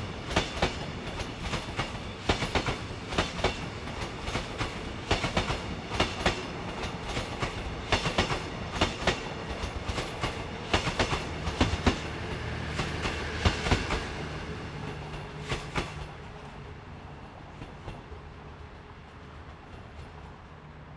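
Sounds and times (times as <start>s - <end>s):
train wheels clacking over rail joints: 0.0s - 16.5s
train rumble: 0.0s - 20.9s.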